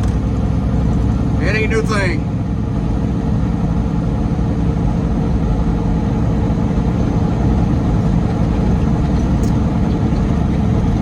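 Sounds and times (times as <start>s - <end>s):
road noise: 0.0s - 11.0s
truck engine drone: 0.0s - 11.0s.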